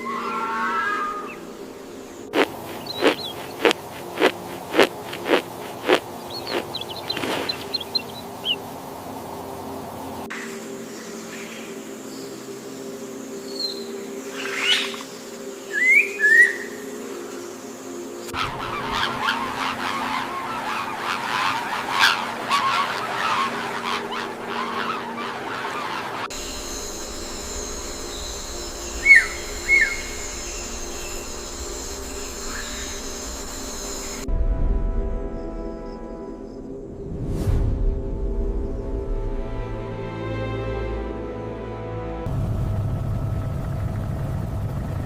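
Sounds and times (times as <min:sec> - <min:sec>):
steady low hum: 0:01.7 - 0:10.3, 0:18.3 - 0:35.6, 0:42.3 - 0:45.0
bird whistling: 0:02.6 - 0:08.6, 0:15.7 - 0:16.8, 0:18.4 - 0:34.2
high-pitched ringing: 0:26.3 - 0:34.3.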